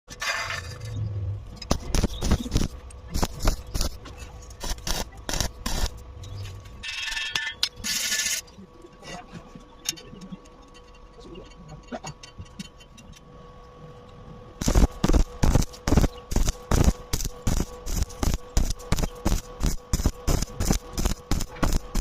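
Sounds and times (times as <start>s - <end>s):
arc welding crackle: 0.1s - 8.5s, 14.6s - 22.0s.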